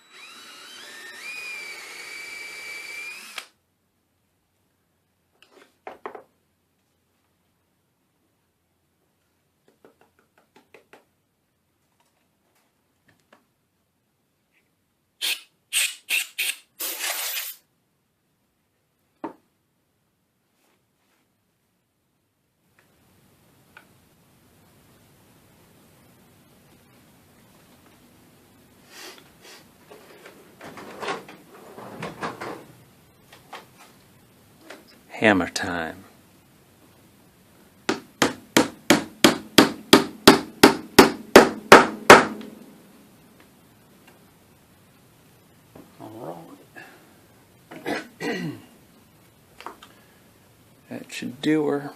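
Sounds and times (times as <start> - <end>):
short bursts of hissing: 15.2 - 17.7, 28.8 - 29.7.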